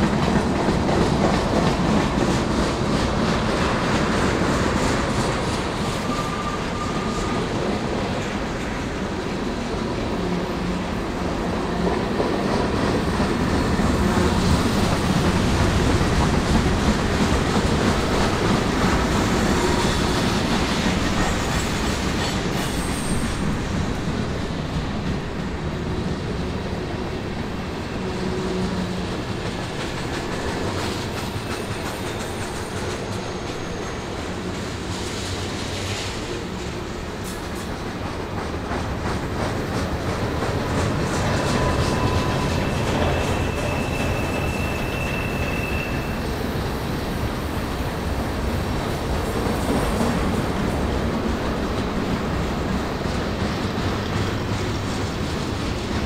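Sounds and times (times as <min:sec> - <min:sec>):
freight train rumble and clatter: 0:00.0 - 0:56.0
high wheel squeals: 0:22.4 - 0:23.5, 0:41.4 - 0:46.4.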